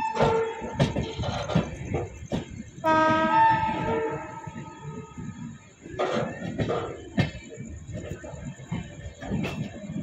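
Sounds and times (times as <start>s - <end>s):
train coaches knocking and rattling: 0.0s - 10.0s
locomotive horn: 2.8s - 5.2s.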